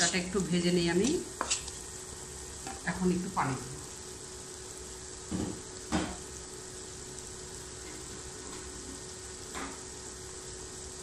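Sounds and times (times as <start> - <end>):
wooden spatula scraping: 0.0 - 0.6
masala sizzling in oil: 0.0 - 11.0.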